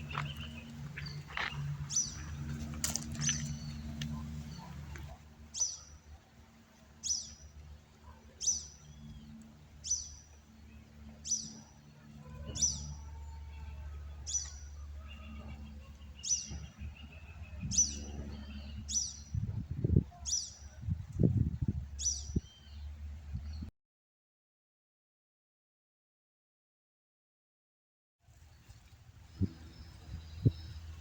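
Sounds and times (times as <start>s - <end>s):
bird chirping: 0.0s - 6.1s.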